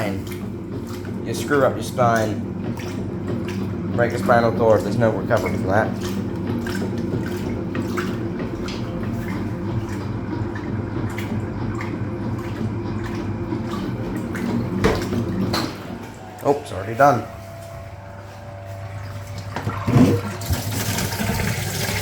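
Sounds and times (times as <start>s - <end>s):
washing machine motor hum: 0.0s - 22.0s
water sloshing and trickling: 0.0s - 22.0s.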